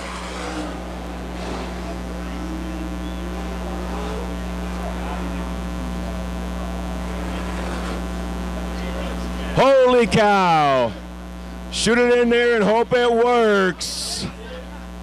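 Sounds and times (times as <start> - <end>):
mini sprint cars running: 0.0 - 5.4, 7.0 - 8.1
faint crowd voices: 0.0 - 10.2, 13.8 - 15.0
electrical hum: 0.0 - 15.0.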